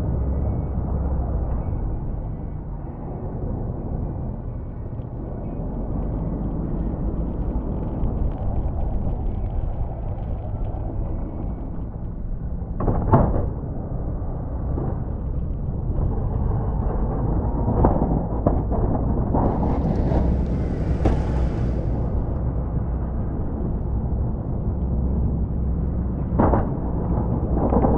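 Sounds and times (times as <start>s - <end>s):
truck engine rumbling: 0.0s - 26.5s
hiss: 19.5s - 22.3s.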